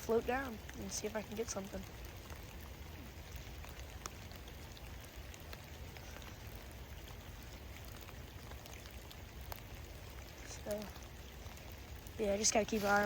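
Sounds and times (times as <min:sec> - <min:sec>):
raindrop ticks: 0:00.0 - 0:13.0
steady rain falling: 0:00.0 - 0:13.0.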